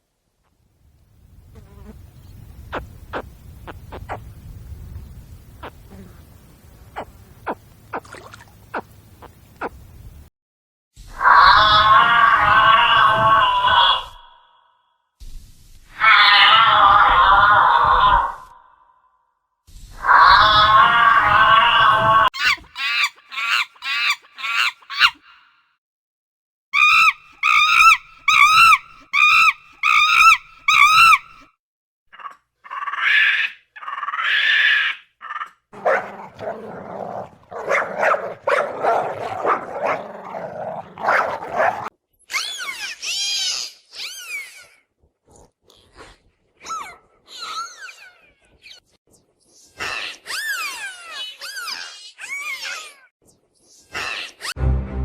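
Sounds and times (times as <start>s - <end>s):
dog whining: 35.2s - 41.9s
dog barking and yipping: 35.8s - 41.9s.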